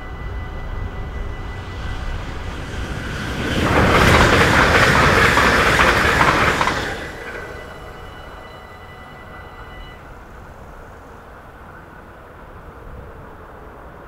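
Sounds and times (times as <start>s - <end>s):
train passing at speed: 0.0s - 14.0s.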